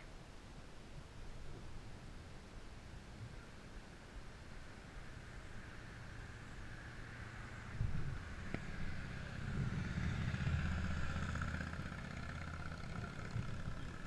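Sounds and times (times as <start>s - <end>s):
vehicle engine running: 7.3s - 14.0s.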